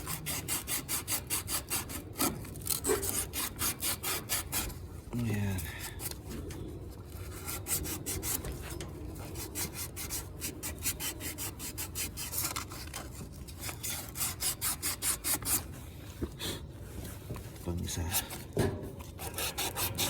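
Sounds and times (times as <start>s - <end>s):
sandpaper scratching strokes: 0.0s - 4.7s, 7.2s - 15.8s, 19.0s - 20.0s.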